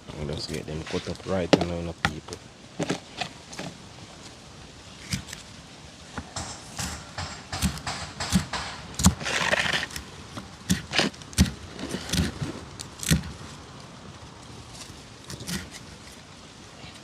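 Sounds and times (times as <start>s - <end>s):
knife scraping: 6.4s - 10.0s.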